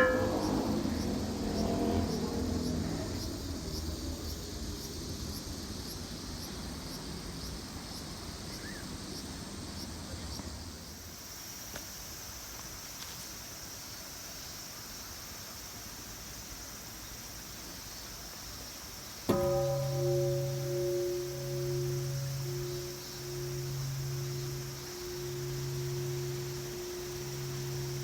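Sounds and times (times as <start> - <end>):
temple bell ringing: 0.0 - 2.1, 19.3 - 28.0
insects chirping: 0.0 - 28.0.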